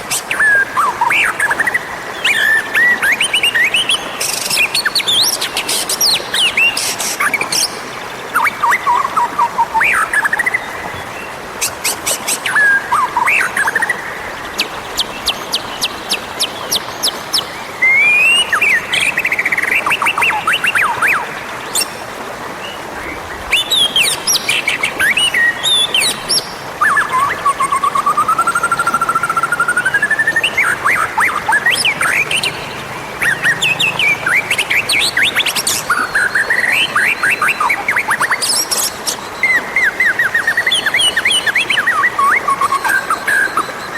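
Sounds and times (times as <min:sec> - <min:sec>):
bird song whistles and chirps: 0:00.1 - 0:22.0, 0:22.6 - 0:43.9
bird singing whistled phrases: 0:17.8 - 0:22.0, 0:33.2 - 0:43.9.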